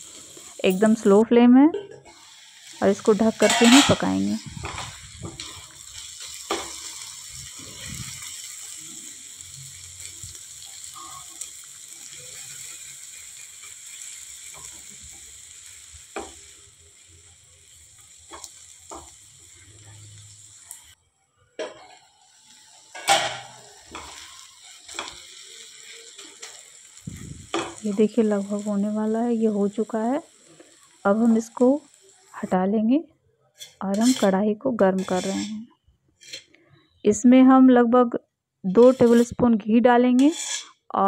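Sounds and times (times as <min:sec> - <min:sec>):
onions sizzling in frying pan: 0:00.0 - 0:21.0, 0:21.6 - 0:33.0, 0:33.6 - 0:35.6, 0:38.7 - 0:40.8
spatula scraping and tapping pan: 0:03.4 - 0:08.5, 0:16.1 - 0:16.5, 0:18.2 - 0:19.2, 0:21.6 - 0:22.1, 0:22.9 - 0:25.4, 0:33.6 - 0:35.6, 0:36.2 - 0:36.6, 0:40.1 - 0:40.8.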